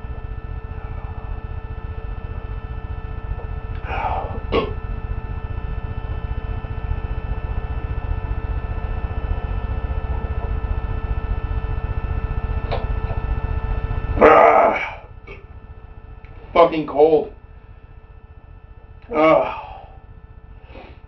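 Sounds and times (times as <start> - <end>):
low hum and rumble: 0.0 - 21.0
man clearing his throat: 3.9 - 4.8.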